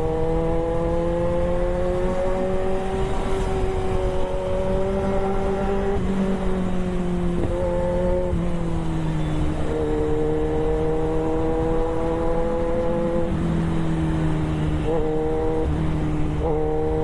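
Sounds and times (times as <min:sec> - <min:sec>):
wind rush: 0:01.9 - 0:08.7.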